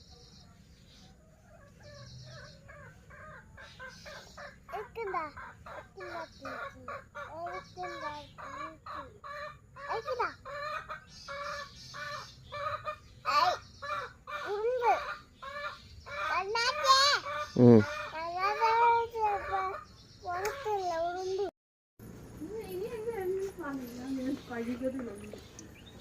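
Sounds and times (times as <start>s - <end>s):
chickens clucking: 1.4s - 21.4s.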